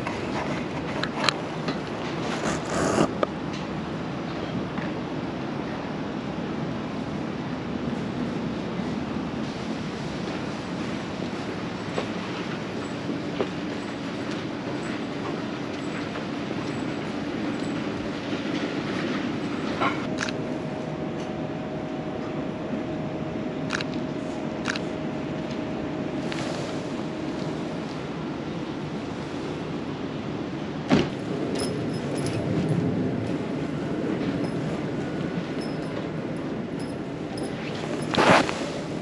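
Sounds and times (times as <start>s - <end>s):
train rumbling past: 0.0s - 39.0s
train whine: 0.0s - 39.0s
sharp clicks: 24.7s - 24.9s.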